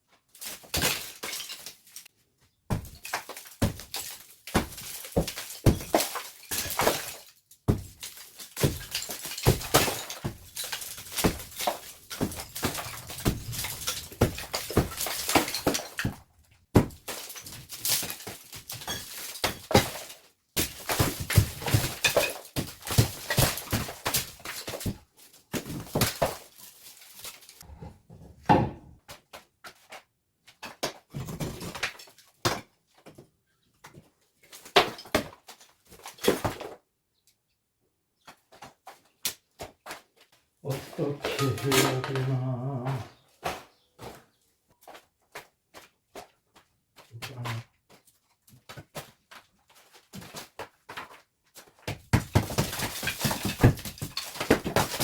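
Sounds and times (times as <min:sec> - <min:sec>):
debris crumbling and falling: 0:00.3 - 0:02.1, 0:02.7 - 0:27.7, 0:40.7 - 0:43.6, 0:49.3 - 0:55.0
demolition knocks and cracks: 0:02.7 - 0:26.5, 0:51.9 - 0:55.0.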